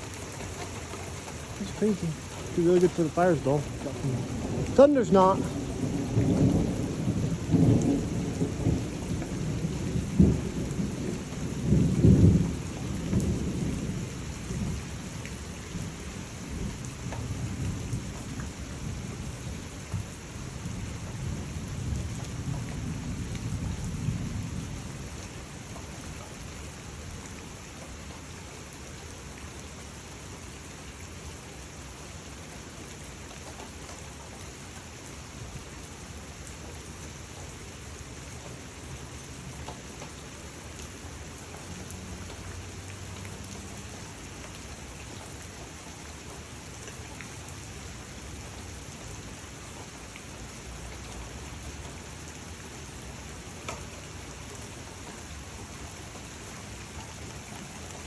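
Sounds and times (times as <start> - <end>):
heavy rain falling: 0.0 - 58.0
low thunder rumble: 1.5 - 14.9.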